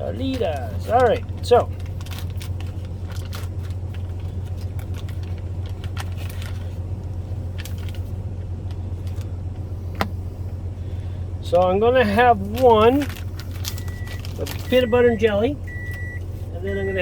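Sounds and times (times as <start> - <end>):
truck engine idling: 0.0 - 17.0
tortilla packet crinkling: 0.2 - 9.3, 12.4 - 14.9.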